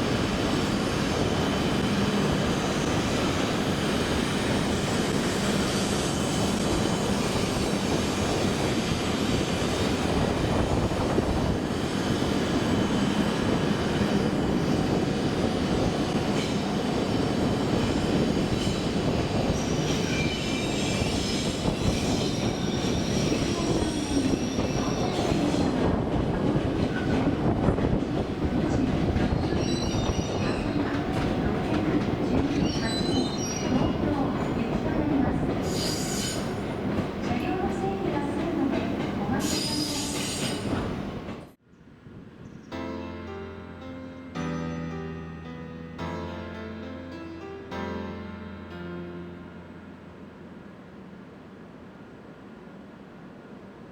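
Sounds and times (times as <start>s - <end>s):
train wheels rumbling on rail: 0.0s - 41.6s
wheels and brakes squealing: 17.8s - 25.5s, 29.3s - 30.8s, 32.5s - 34.0s, 35.6s - 36.6s, 39.4s - 40.8s.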